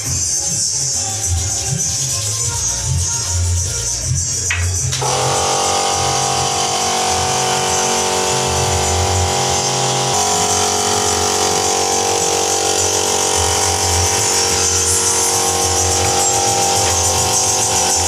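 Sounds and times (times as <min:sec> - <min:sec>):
electric power tool running: 0:04.8 - 0:18.0.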